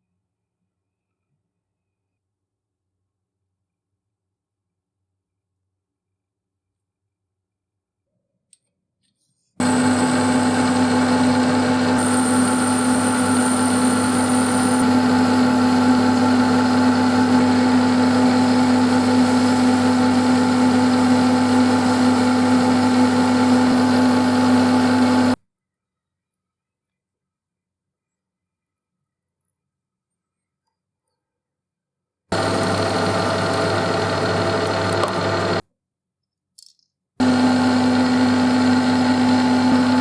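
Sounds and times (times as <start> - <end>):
electric power tool motor whining: 9.6 - 25.4, 32.3 - 35.6, 37.2 - 40.0.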